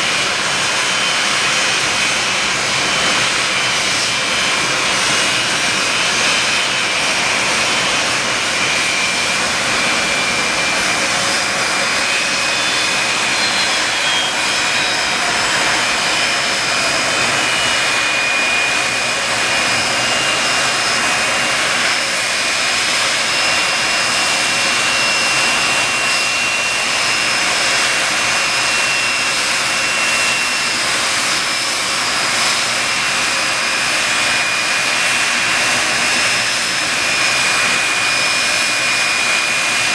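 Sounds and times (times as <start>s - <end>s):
jet engines rushing with high whine: 0.0s - 39.9s.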